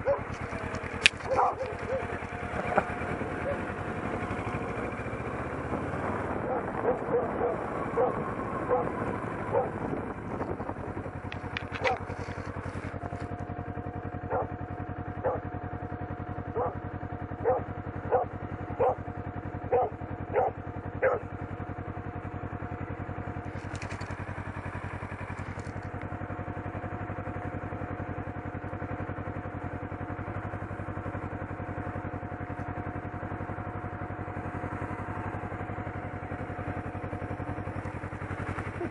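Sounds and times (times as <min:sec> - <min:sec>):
dog barking: 0:00.0 - 0:00.4, 0:01.2 - 0:02.2, 0:03.4 - 0:03.7, 0:06.4 - 0:09.8, 0:11.8 - 0:12.1, 0:14.3 - 0:14.6, 0:15.2 - 0:15.5, 0:16.5 - 0:16.8, 0:17.4 - 0:19.0, 0:19.7 - 0:21.3
motorcycle engine idling: 0:00.0 - 0:38.9.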